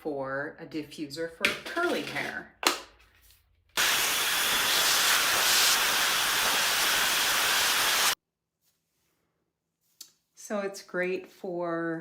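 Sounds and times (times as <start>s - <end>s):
hair dryer blowing air: 3.8s - 8.2s.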